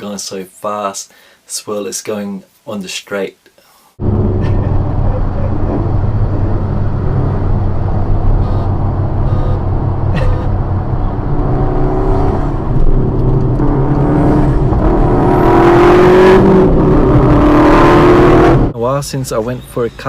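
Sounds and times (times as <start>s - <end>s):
rushing noise: 4.0s - 18.7s
sports car engine accelerating: 4.0s - 18.7s.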